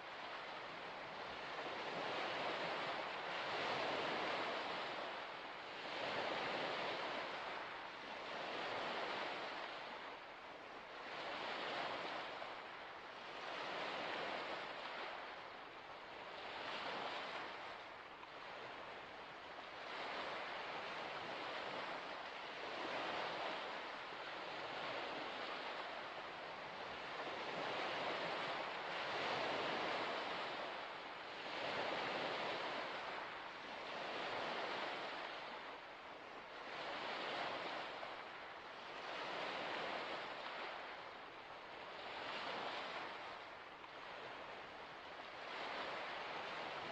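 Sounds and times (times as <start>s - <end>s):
small waves lapping at shore: 0.0s - 46.9s.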